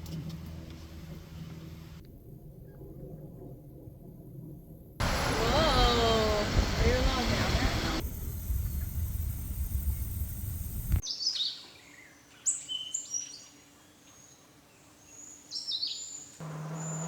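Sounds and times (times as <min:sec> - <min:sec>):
low rumbling noise: 0:00.0 - 0:11.0
bird chirping sharply: 0:16.7 - 0:17.0.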